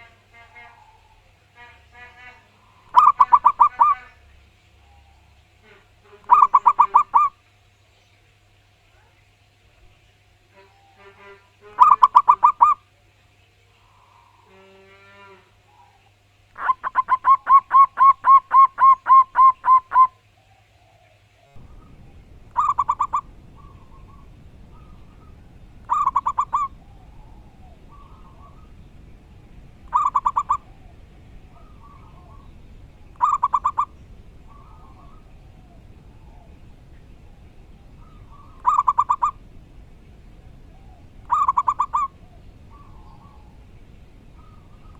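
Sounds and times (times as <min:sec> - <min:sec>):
steady background hiss: 0:00.0 - 0:44.9
doves cooing: 0:02.6 - 0:04.2, 0:04.8 - 0:07.4, 0:11.7 - 0:12.8, 0:15.7 - 0:20.1, 0:21.6 - 0:44.9.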